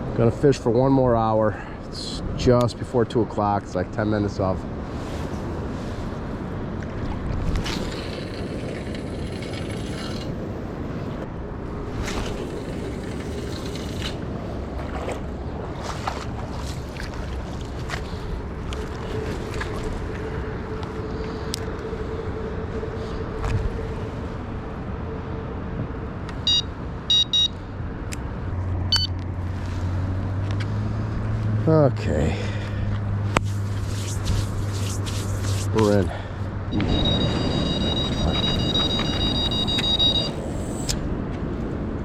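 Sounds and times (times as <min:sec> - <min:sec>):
wind and water rumble: 0:00.0 - 0:42.0
bite alarm beeps: 0:26.4 - 0:27.6, 0:28.9 - 0:29.2, 0:36.7 - 0:40.9.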